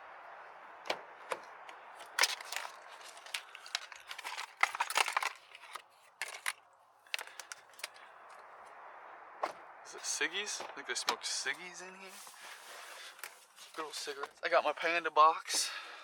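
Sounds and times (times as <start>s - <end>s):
crinkling and rustling: 0.8s - 8.5s, 10.6s - 14.6s
clicks and knocks of small items: 0.9s - 8.5s.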